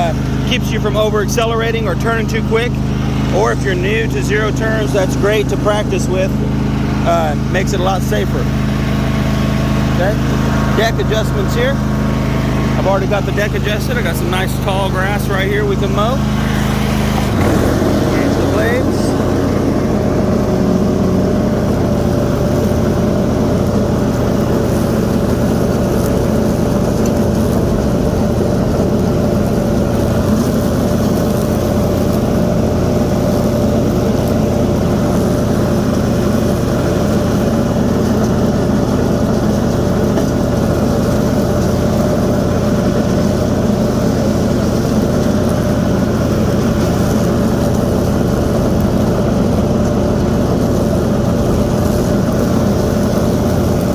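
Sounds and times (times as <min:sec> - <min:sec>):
lawn mower engine running: 0:00.0 - 0:53.9.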